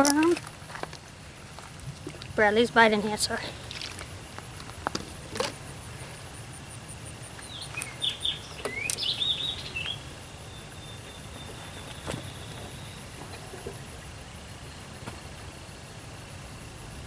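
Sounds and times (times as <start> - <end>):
outdoor background noise: 0.0 - 17.0
songbird whistling: 7.4 - 13.2.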